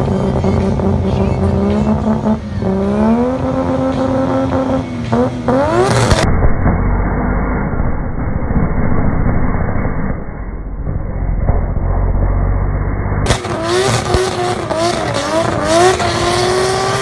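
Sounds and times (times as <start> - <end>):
car engine revving high: 0.0 - 17.0
dull low rumble: 5.5 - 13.5.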